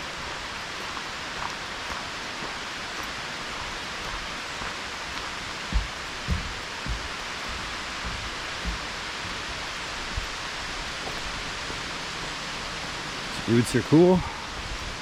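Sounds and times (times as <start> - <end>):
footsteps on trail: 0.0 - 11.9
rain on leaves: 0.0 - 15.0.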